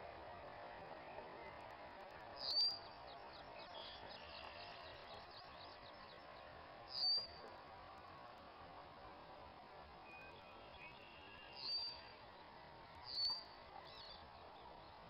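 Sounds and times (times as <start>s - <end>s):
faint repeated bird chirps: 6.9s - 7.4s.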